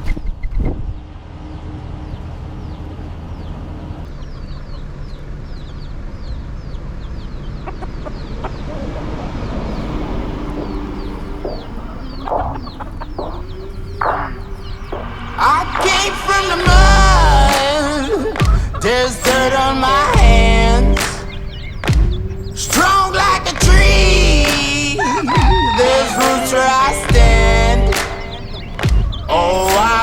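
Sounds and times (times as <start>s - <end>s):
chicks peeping: 9.7s - 30.0s
low hum: 9.7s - 30.0s
chickens clucking: 9.8s - 30.0s.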